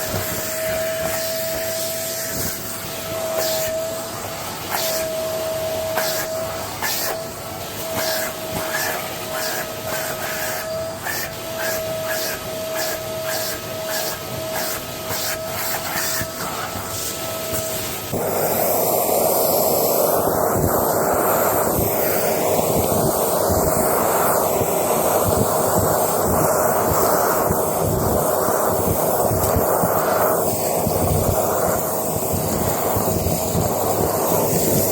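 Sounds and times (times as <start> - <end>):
rushing airflow: 0.0 - 34.9
vacuum cleaner whining: 0.0 - 34.9.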